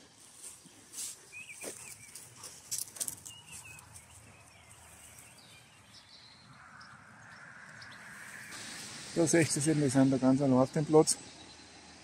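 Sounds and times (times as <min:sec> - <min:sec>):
faint steady hiss: 0:07.8 - 0:11.8.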